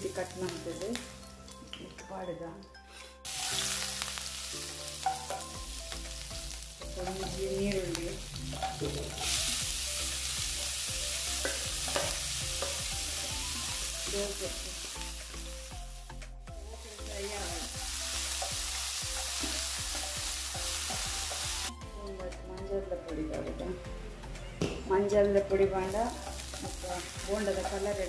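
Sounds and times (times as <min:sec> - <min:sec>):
onion sizzling in hot oil: 0:03.2 - 0:21.7, 0:25.6 - 0:28.0.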